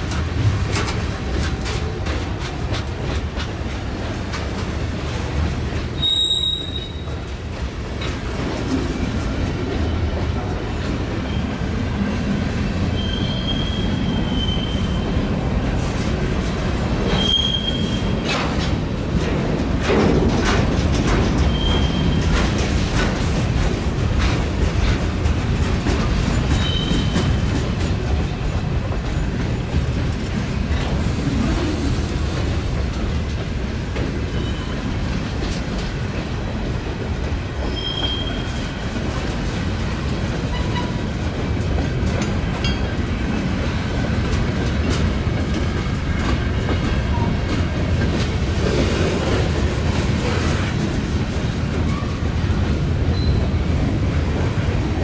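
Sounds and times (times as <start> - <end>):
train wheels clicking over rail joints: 0.0 - 11.4, 12.0 - 55.0
high wheel squeals: 6.0 - 7.1, 13.0 - 15.0, 17.1 - 18.1.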